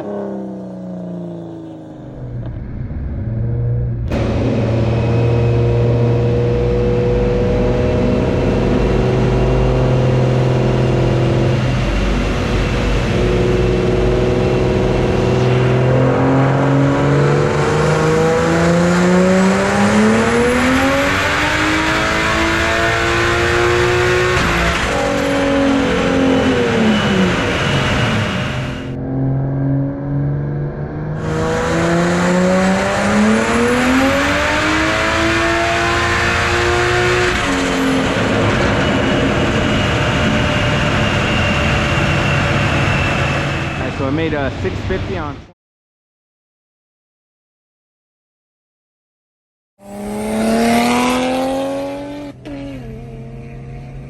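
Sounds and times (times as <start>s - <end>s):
car engine revving on dyno: 0.0s - 45.2s, 49.8s - 54.0s.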